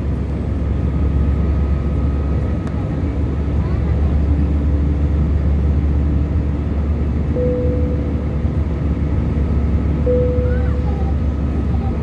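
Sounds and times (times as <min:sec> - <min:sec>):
jet engines rumbling in cabin: 0:00.0 - 0:12.0.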